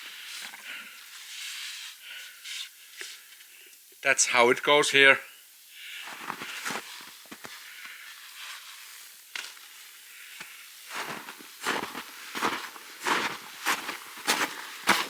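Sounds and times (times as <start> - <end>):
footsteps crunching: 6.1 - 8.6, 10.4 - 15.0.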